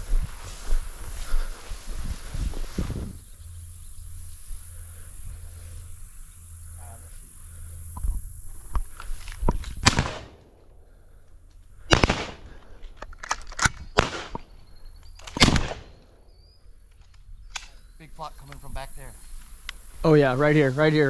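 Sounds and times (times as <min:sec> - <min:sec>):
gunshots: 0:09.8 - 0:10.5, 0:11.9 - 0:12.6, 0:13.9 - 0:14.4, 0:15.3 - 0:16.0.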